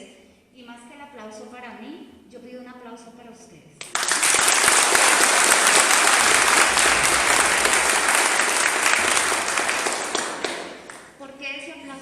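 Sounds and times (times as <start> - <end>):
audience applauding: 3.8 - 11.2.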